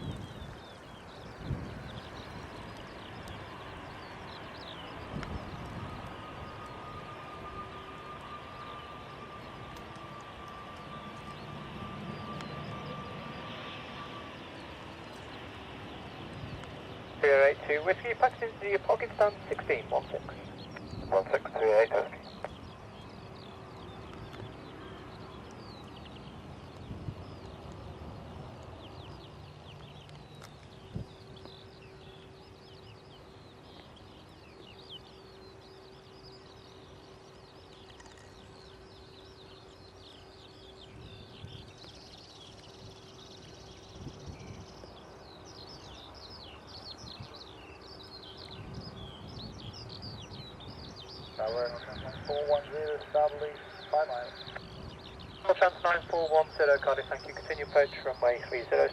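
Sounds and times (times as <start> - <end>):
birds chirping: 0.0 - 58.9.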